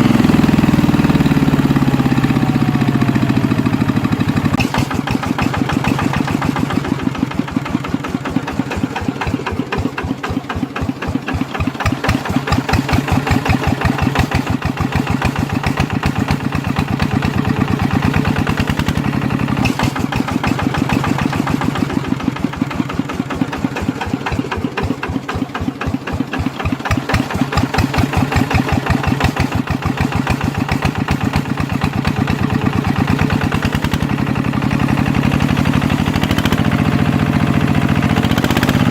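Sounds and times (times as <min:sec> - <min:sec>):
small diesel engine chugging: 0:00.0 - 0:38.9.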